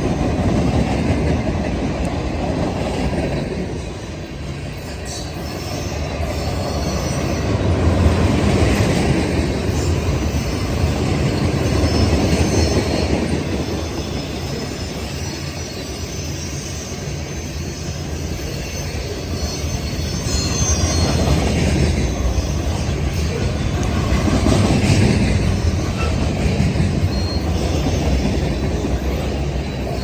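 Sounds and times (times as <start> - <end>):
steel wheels rumbling on rail: 0.0 - 30.0
high wheel squeal: 4.6 - 8.1, 9.5 - 24.3, 25.3 - 30.0.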